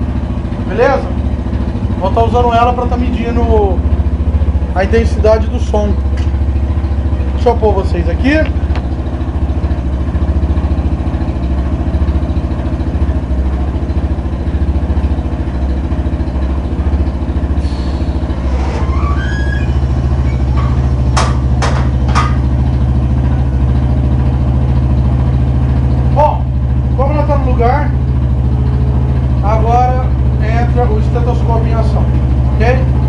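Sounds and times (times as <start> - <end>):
motorcycle engine idling: 0.0 - 33.0.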